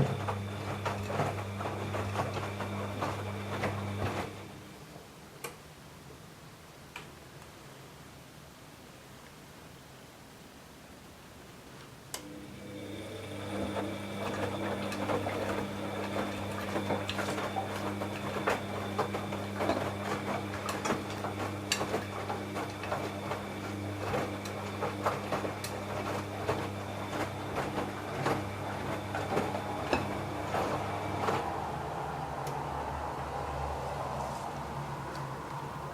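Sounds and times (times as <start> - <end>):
washing machine motor hum: 0.0 - 4.8, 12.2 - 35.9.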